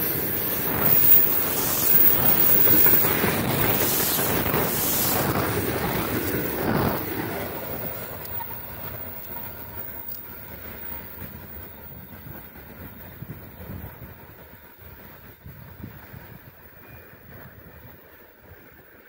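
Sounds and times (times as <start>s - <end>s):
freight wagons rolling on rails: 0.0s - 19.0s.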